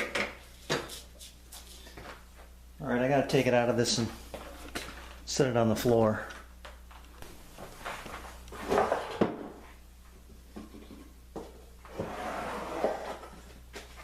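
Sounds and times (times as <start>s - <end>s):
wood scraping and rubbing: 11.9s - 13.4s.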